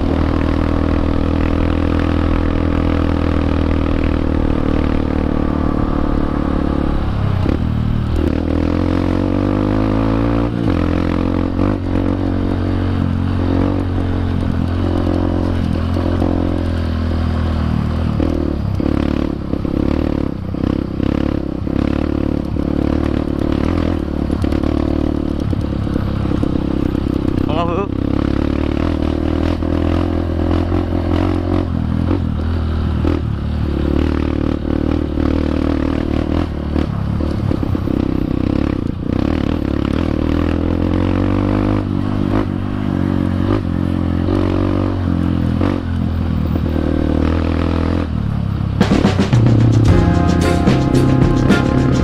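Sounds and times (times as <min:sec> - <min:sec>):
motorcycle engine revving: 0:00.0 - 0:50.3.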